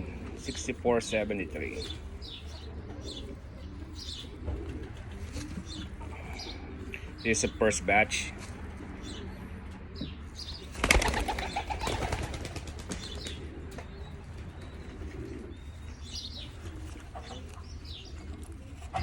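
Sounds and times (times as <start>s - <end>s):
pigeons cooing: 0.0s - 19.0s
pigeon wings flapping: 10.7s - 13.9s.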